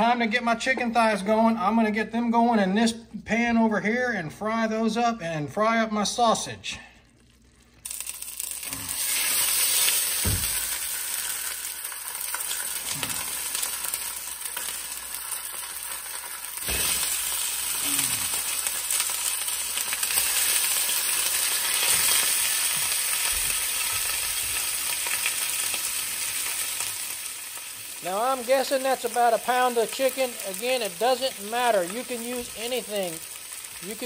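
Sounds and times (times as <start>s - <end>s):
chicken frying in oil: 7.1s - 34.0s.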